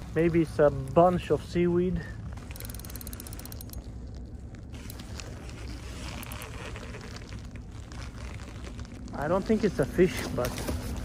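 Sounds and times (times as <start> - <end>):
fishing reel clicking: 2.5 - 3.8.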